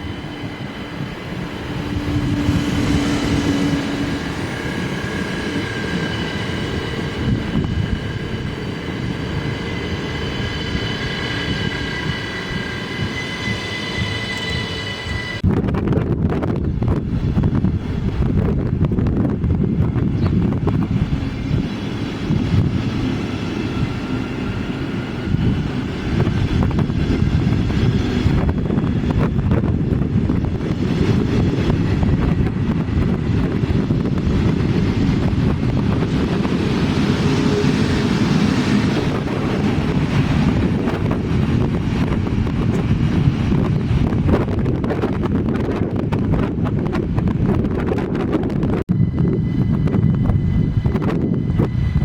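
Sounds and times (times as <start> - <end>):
train running past: 0.0 - 52.0
wind buffeting microphone: 0.0 - 52.0
rising whine: 20.4 - 52.0.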